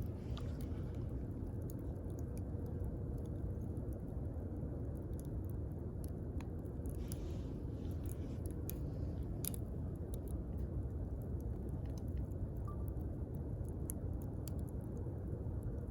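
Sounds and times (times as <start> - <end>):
faint hiss of fire: 0.0 - 15.9
wood fire crackling: 0.0 - 15.9.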